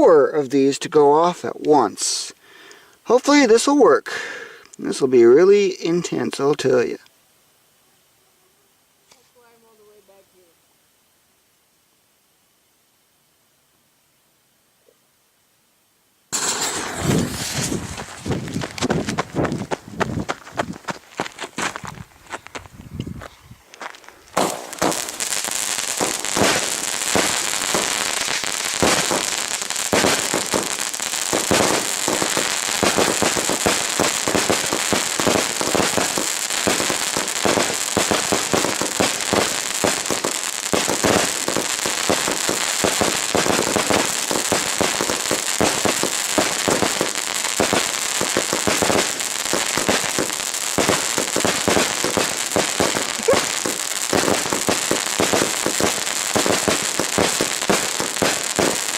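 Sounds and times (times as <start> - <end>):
fireworks crackling and banging: 16.3 - 58.9.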